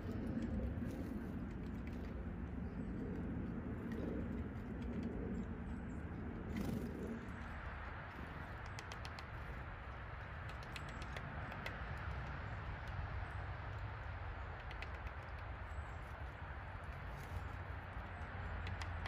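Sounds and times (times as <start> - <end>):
woodpecker tapping on wire mesh: 7.6 - 15.7, 17.0 - 19.0.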